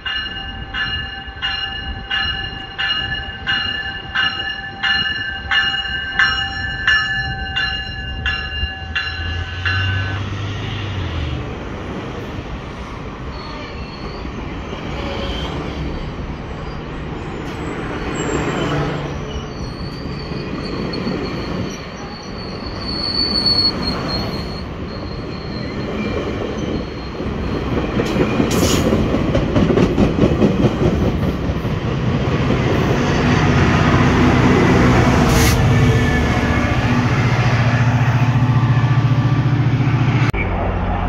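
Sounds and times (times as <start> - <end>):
train rolling past: 0.0 - 41.0
train wheels squealing: 13.2 - 29.0.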